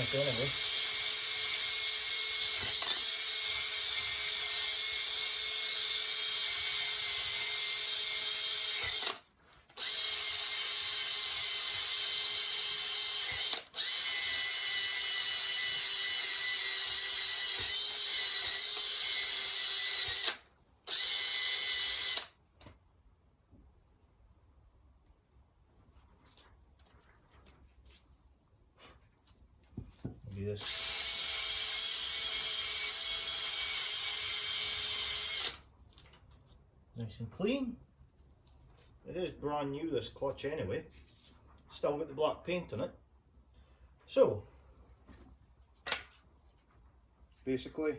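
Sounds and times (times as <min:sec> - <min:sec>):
power drill with wire brush: 0:00.0 - 0:22.4, 0:30.6 - 0:35.6.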